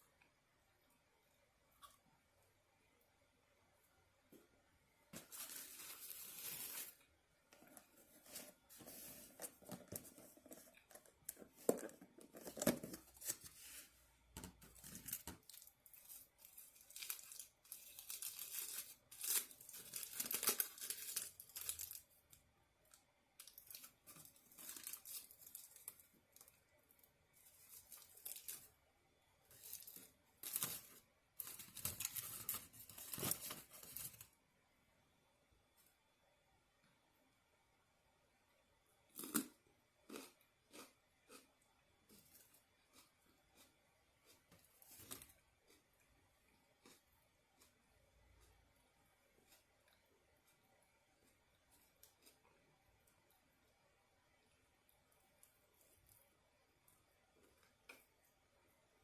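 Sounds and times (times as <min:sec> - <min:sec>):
paper and plastic rustling: 0:05.2 - 0:22.1, 0:29.5 - 0:34.3.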